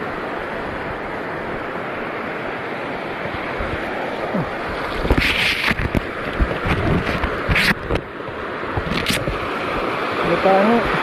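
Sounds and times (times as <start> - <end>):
surf rushing: 0.0 - 11.0
wind on microphone: 3.0 - 11.0.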